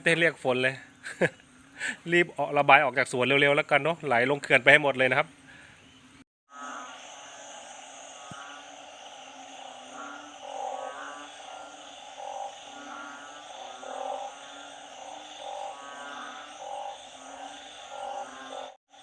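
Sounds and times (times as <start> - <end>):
frogs croaking: 0.0 - 5.6, 6.5 - 19.0
high-pitched frog chorus: 6.5 - 19.0.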